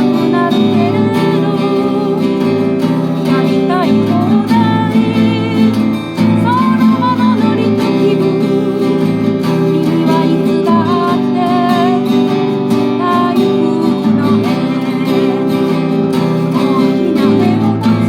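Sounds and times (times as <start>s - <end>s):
acoustic guitar strumming: 0.0s - 18.0s
wavering melody line: 0.0s - 18.0s.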